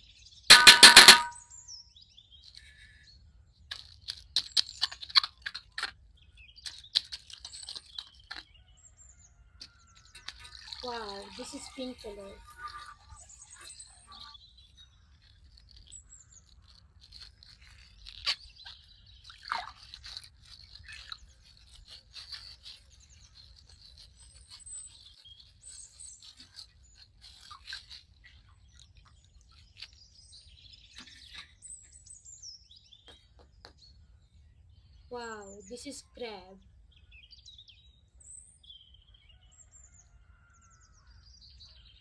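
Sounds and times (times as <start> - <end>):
birds chirping faintly: 0.0 - 42.0
plastic bag crinkling: 10.0 - 30.0.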